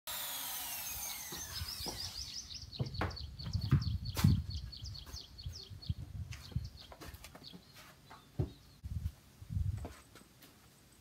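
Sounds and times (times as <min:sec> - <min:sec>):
small bird chirping: 0:01.2 - 0:08.8.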